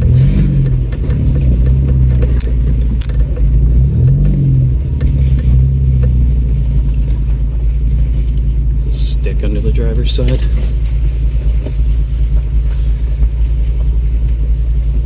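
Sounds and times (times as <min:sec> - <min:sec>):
stick clicking and scraping: 0:00.0 - 0:07.2
truck engine running: 0:00.0 - 0:15.0.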